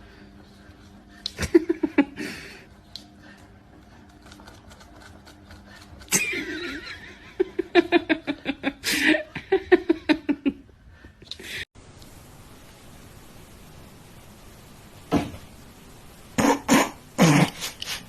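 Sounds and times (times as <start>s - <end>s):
person laughing hard: 1.3s - 2.6s, 6.1s - 10.8s.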